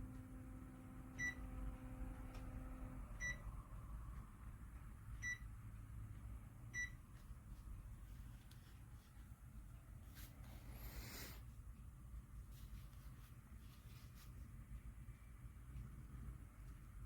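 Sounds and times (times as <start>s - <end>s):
air conditioner beeps: 0.0s - 4.3s, 5.0s - 7.5s
faint low hum: 0.0s - 17.0s.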